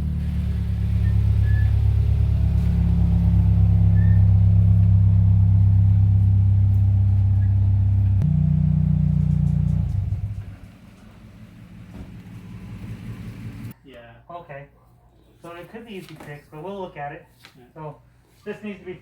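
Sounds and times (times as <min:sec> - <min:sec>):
car engine idling: 0:00.0 - 0:13.8.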